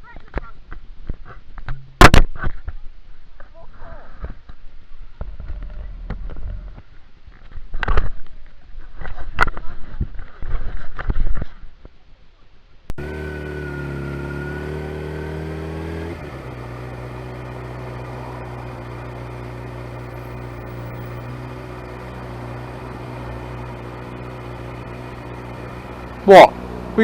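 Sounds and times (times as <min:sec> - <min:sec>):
motorcycle engine running: 0:13.0 - 0:27.0.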